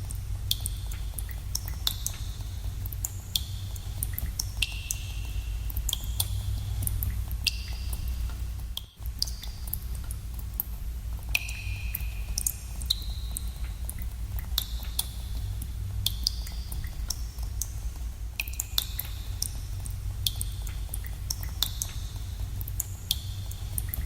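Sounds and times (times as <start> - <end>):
water drops plinking into pool: 11.3 - 14.0, 18.4 - 19.6.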